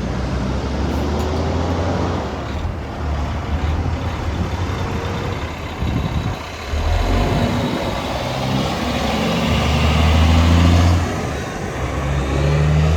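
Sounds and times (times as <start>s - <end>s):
truck diesel engine running: 0.0s - 12.9s.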